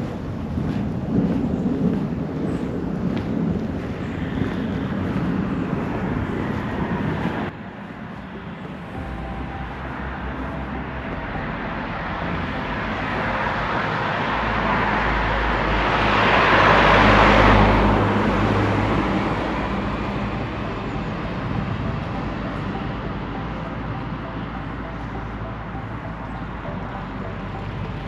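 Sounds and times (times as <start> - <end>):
vehicle passing close by: 0.0 - 28.0.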